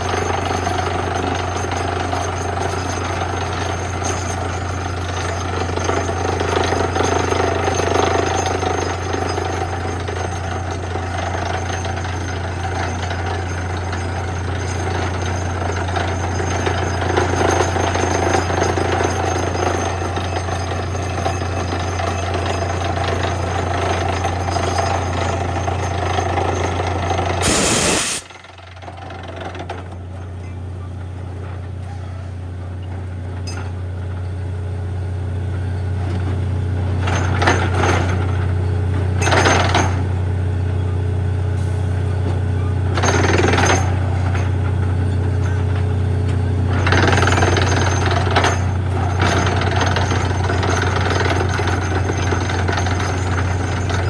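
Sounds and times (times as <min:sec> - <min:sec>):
drilling rig engine drone: 0:00.0 - 0:33.7, 0:37.0 - 0:54.0
loud burst: 0:27.4 - 0:28.4.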